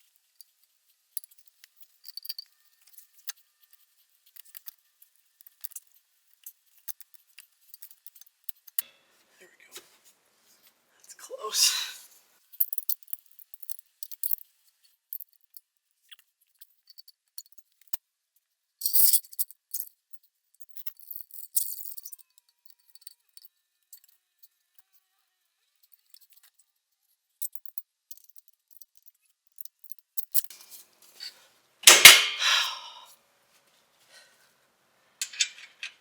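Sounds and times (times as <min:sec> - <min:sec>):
loud metal clank: 0:31.8 - 0:32.8
metallic clinks of tools: 0:35.2 - 0:36.0.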